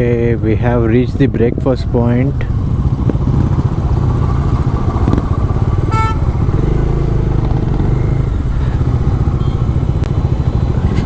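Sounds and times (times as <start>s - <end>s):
motorcycle engine running: 0.0s - 11.0s
short horn beep: 5.9s - 6.3s.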